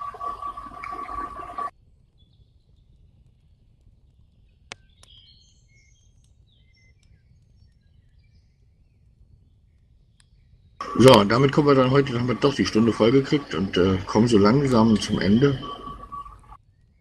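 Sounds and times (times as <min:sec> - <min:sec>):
faint birdsong chirps: 0:00.0 - 0:17.0
steady high tone: 0:10.8 - 0:16.6.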